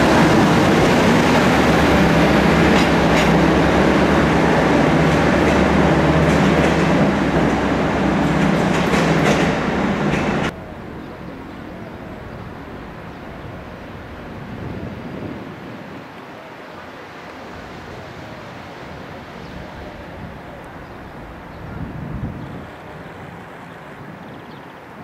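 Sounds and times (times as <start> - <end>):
train running: 0.0 - 15.1
wind on microphone: 13.4 - 16.2, 17.7 - 24.6.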